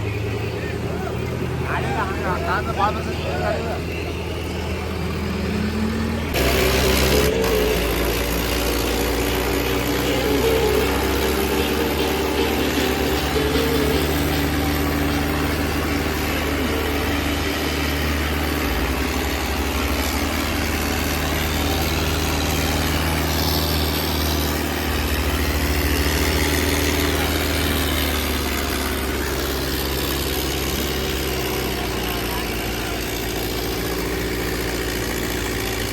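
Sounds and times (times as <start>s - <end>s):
diesel tractor engines running: 0.0s - 35.9s.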